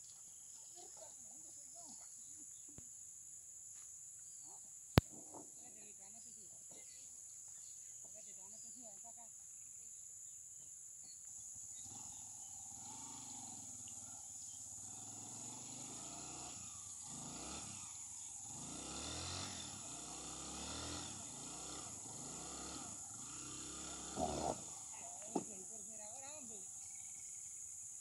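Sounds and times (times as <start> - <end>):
small motorcycle engine revving: 11.6 - 27.8.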